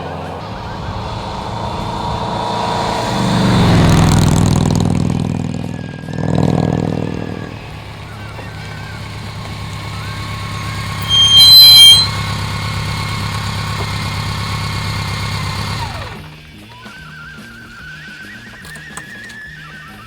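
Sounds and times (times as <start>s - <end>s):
motorcycle engine running: 0.0s - 16.9s
loud high-pitched sound: 0.4s - 12.2s
music: 4.7s - 8.9s, 16.1s - 20.0s.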